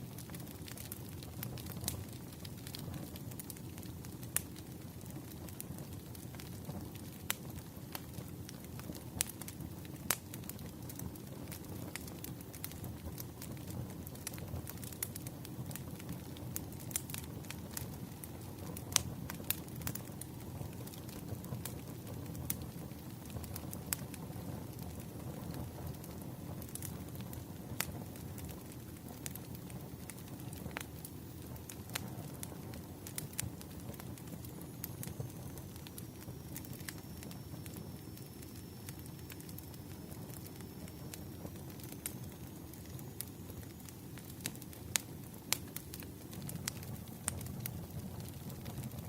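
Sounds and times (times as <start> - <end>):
wood fire crackling: 0.0 - 49.0.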